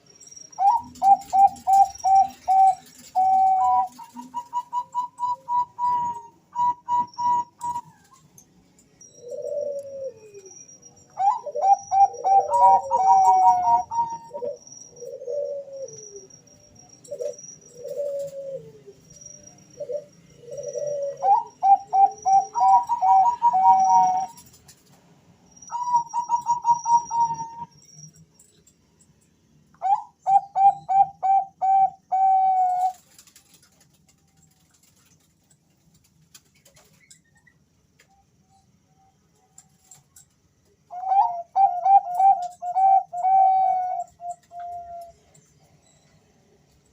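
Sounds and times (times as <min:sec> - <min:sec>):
faint high chirping: 0:00.0 - 0:46.9
doves cooing: 0:00.6 - 0:08.4, 0:09.0 - 0:16.4, 0:17.0 - 0:24.6, 0:25.7 - 0:27.8, 0:29.8 - 0:34.0, 0:40.9 - 0:45.4.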